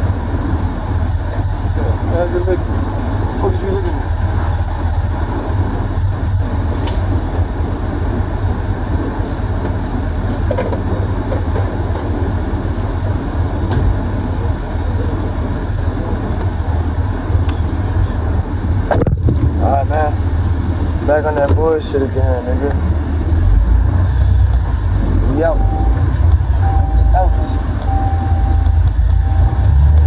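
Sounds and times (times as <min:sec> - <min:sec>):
truck engine and road rumble: 0:00.0 - 0:30.0.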